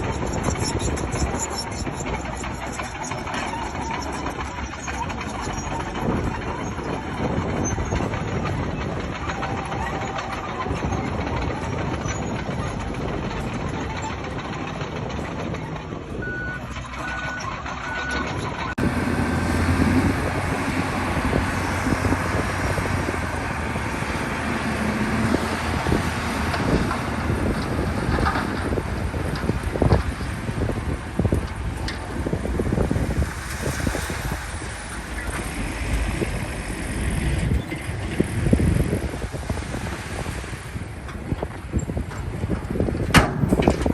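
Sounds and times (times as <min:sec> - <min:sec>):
heavy machine engine: 0:00.0 - 0:43.9
backup alarm beeps: 0:16.2 - 0:18.3.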